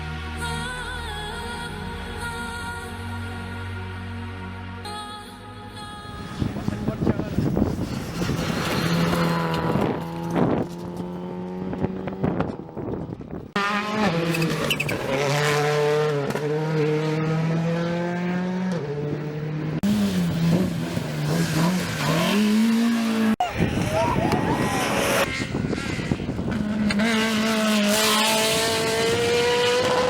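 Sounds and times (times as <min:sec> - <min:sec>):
rally car engines revving hard: 0:06.2 - 0:30.0.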